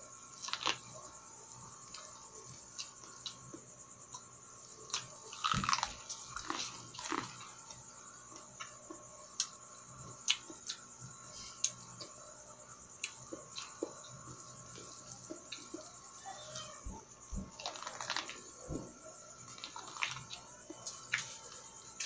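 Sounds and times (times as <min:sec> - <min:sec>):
biting and chewing corn: 0:04.9 - 0:07.6, 0:17.5 - 0:18.4, 0:19.5 - 0:21.4.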